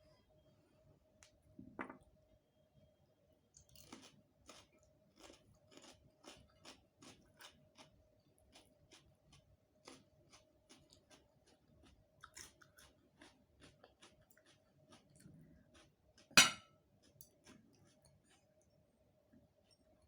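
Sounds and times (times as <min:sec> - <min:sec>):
person chewing food: 0:03.6 - 0:18.8.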